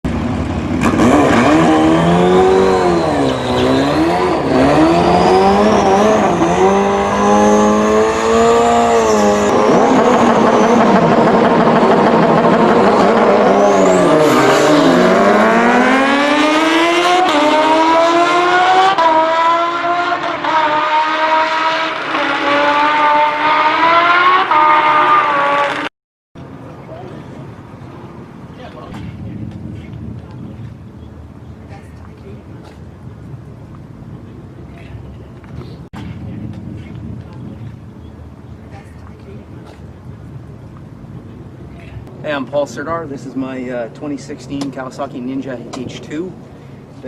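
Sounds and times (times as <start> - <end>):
motorcycle engine revving: 0.1 - 25.9.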